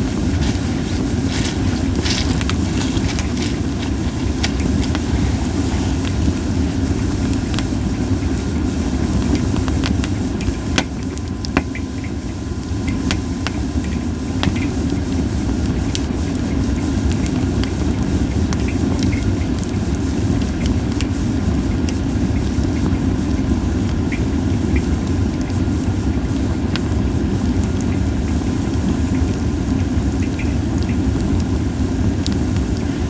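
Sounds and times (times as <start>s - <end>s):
campfire crackling and popping: 0.0s - 8.3s
fire low rumble: 0.0s - 11.6s.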